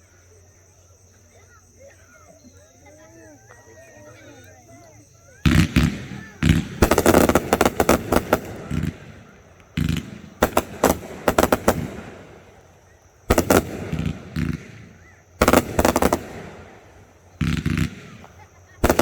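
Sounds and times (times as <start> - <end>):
fireworks bangs and crackles: 5.4 - 19.0.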